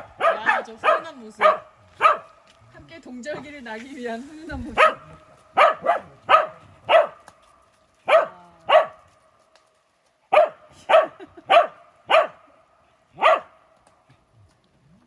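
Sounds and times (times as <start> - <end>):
dog barking: 0.0 - 2.4, 4.8 - 7.3, 8.0 - 9.0, 10.3 - 12.5, 13.2 - 13.6.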